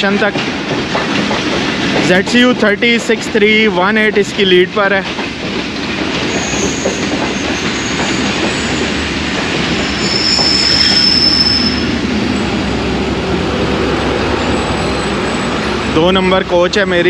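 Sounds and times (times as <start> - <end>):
train wheels rumbling on rail: 0.0 - 17.0
high metallic squeal: 6.3 - 9.0, 9.6 - 12.5.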